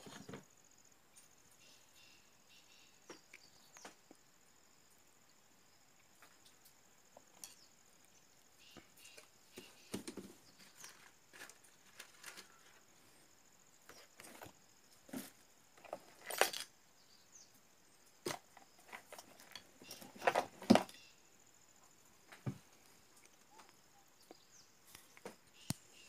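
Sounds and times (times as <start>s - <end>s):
handling clicks knocks and rustles: 9.0s - 12.9s, 13.9s - 16.7s, 18.2s - 21.0s.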